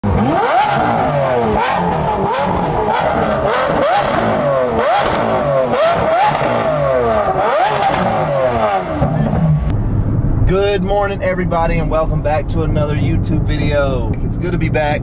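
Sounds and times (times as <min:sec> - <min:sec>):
car engine revving in blips: 0:00.0 - 0:10.0.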